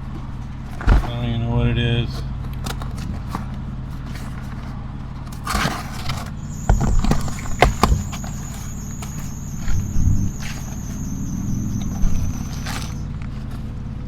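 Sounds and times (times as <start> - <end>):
generator humming: 5.4 - 13.3.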